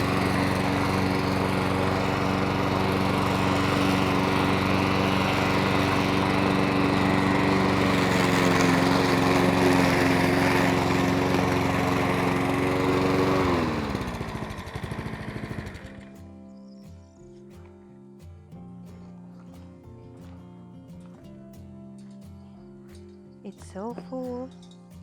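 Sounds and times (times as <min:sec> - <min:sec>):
lawn mower engine running: 0:00.0 - 0:18.4.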